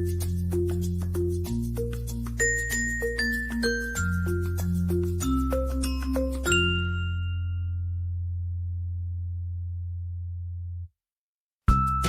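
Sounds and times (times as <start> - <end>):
bell-like mallet notes: 0.0 - 8.1, 11.7 - 12.0
bass line: 3.6 - 10.9.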